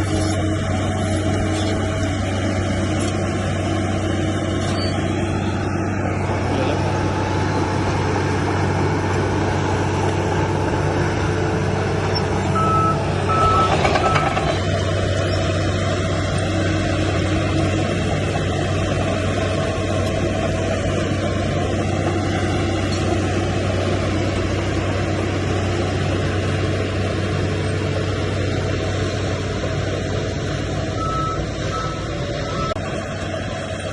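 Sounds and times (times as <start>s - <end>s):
heavy diesel engine running: 0.0s - 33.9s
reversing alarm beeps: 12.6s - 14.4s, 31.0s - 32.8s.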